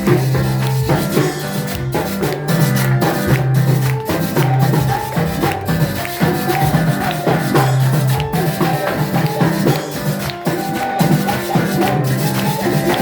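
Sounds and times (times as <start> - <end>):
drums: 0.0 - 13.0
maracas shaking: 0.0 - 13.0.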